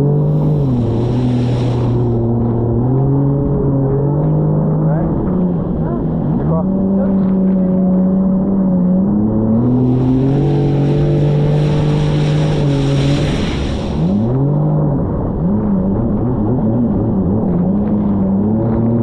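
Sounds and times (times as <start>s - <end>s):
jet ski engine running: 0.0s - 19.0s
rushing hiss: 0.4s - 2.2s, 9.6s - 14.2s.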